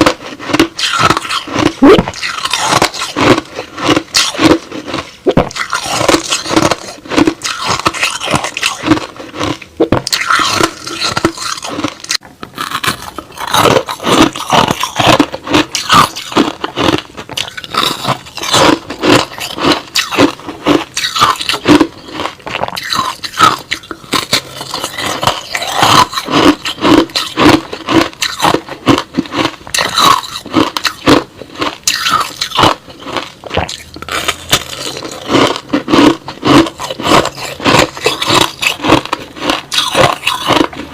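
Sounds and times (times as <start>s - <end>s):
chewing crushed ice: 0.0s - 40.9s.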